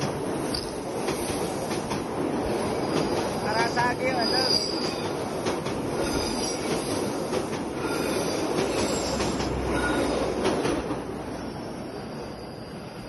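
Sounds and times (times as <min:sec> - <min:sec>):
train wheels rumbling on bridge: 0:00.0 - 0:11.6.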